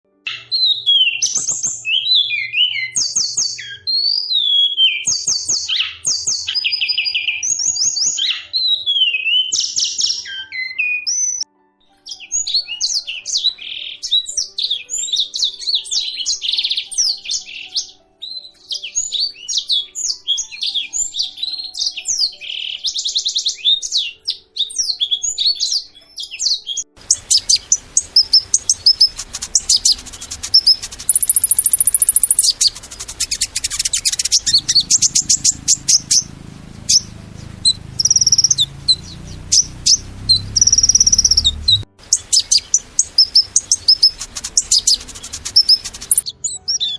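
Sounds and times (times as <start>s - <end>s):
small birds chirping and trilling: 0.3s - 46.9s
steady hiss: 27.0s - 46.2s
low rumble: 32.6s - 41.9s.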